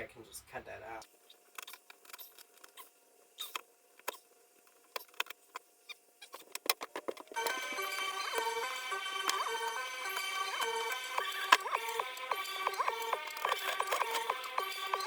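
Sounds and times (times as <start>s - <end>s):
background music: 7.4s - 15.0s.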